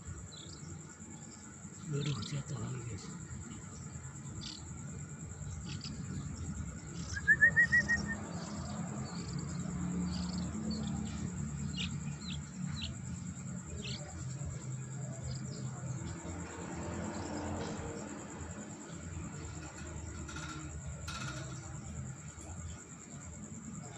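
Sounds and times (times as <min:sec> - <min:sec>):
young bulbul chirping: 0:05.6 - 0:06.2, 0:06.8 - 0:13.2.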